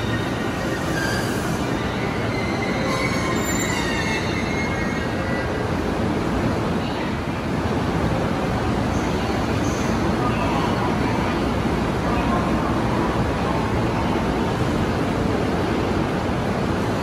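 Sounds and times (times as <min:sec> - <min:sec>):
high-pitched wheel squeals: 0:00.0 - 0:05.4.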